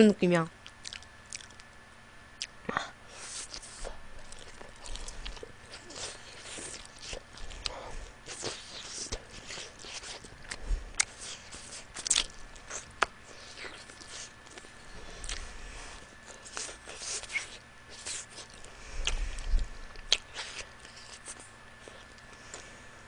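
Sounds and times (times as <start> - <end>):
lip smacks: 0.6 - 1.8, 16.2 - 22.7
wet chewing: 0.6 - 1.8, 3.1 - 22.7.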